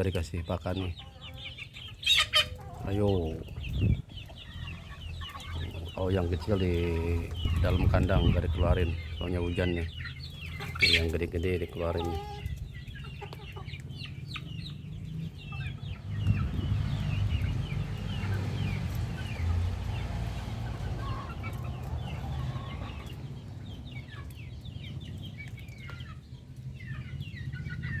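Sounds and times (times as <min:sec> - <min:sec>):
chickens clucking: 0:00.0 - 0:28.0
steady low rumble: 0:03.4 - 0:10.6, 0:13.9 - 0:27.1.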